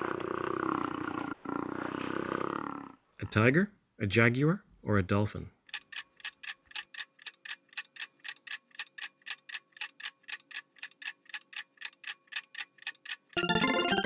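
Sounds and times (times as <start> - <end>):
clock ticking: 5.7 - 14.0
bright chiming jingle: 13.4 - 14.0.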